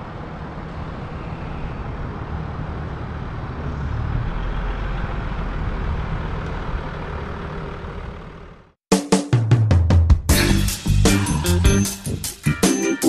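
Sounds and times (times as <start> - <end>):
diesel car engine rumbling: 1.9 - 8.8.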